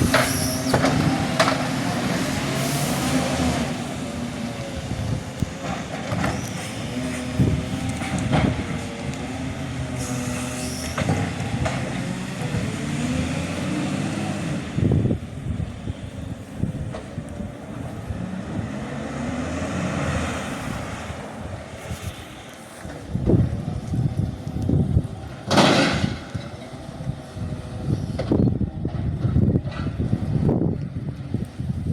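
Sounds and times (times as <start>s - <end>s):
knocks and clunks: 0.0s - 1.9s, 5.4s - 9.1s, 25.4s - 26.6s
diesel truck engine running: 0.0s - 31.9s.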